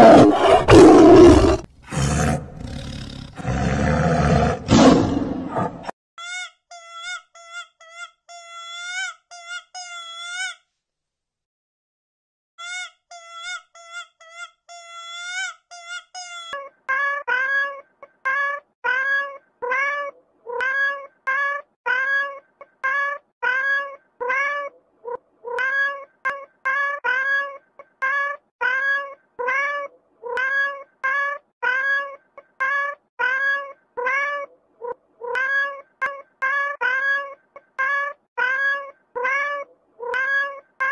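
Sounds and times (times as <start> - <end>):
cat meowing: 14.7 - 40.9.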